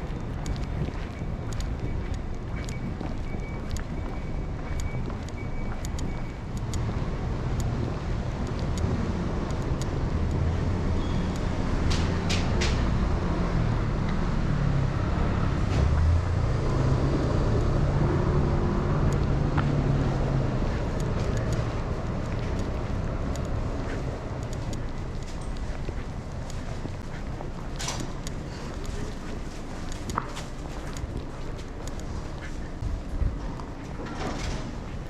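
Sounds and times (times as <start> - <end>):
vehicle engine droning: 0.0 - 35.0
sharp clicks: 0.1 - 12.9, 18.8 - 32.9.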